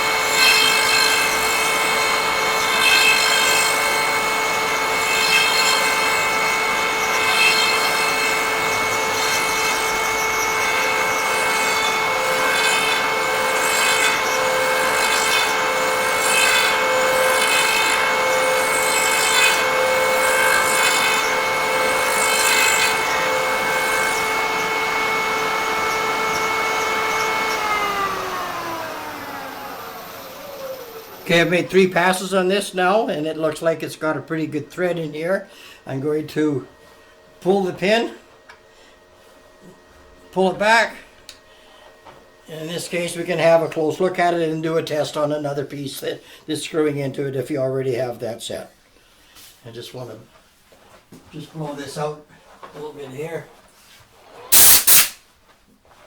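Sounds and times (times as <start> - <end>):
rasping cut into wood: 0.0 - 31.5
high-pitched motor whine: 0.0 - 31.8
motor spinning down: 0.0 - 31.9.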